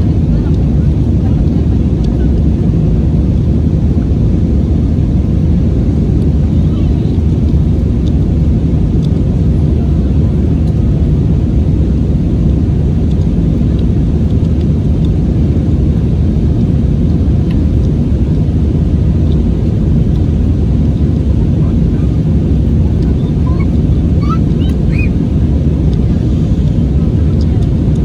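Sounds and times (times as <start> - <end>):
airliner cabin engine rumble: 0.0 - 28.0.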